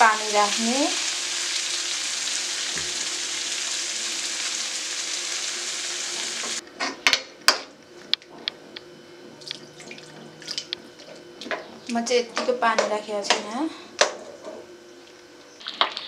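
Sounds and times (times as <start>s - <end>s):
vegetables sizzling in hot oil: 0.0s - 6.6s.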